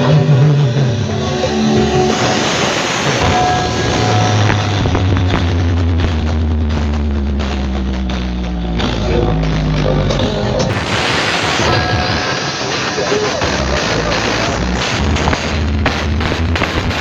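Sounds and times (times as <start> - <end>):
deep bass notes: 0.0 - 17.0
dense percussion: 0.0 - 17.0.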